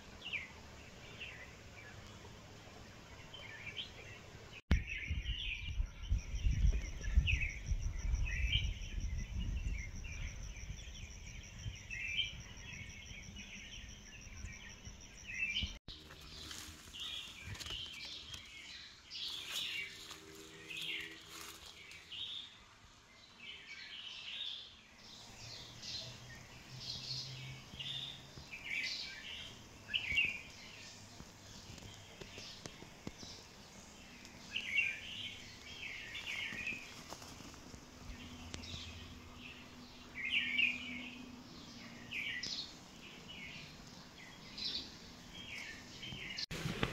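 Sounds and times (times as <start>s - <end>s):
small birds chirping: 0.0s - 46.9s
wind rumbling on microphone: 4.7s - 15.0s.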